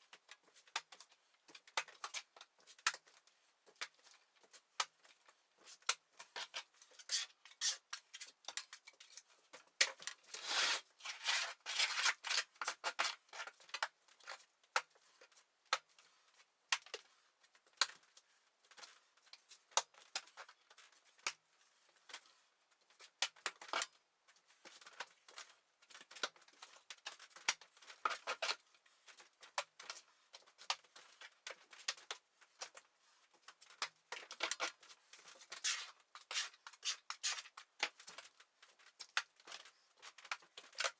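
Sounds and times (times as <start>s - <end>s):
trowel scraping wet plaster: 35.6s - 37.5s.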